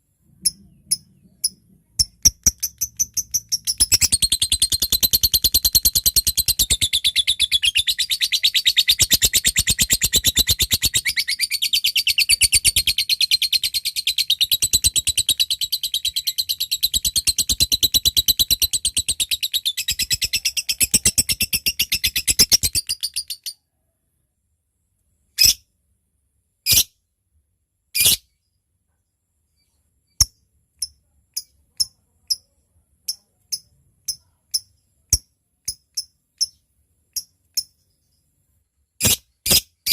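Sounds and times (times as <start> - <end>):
sharp bird chirps: 0.3 - 23.6
lovebird rapid high chatter: 0.4 - 23.4.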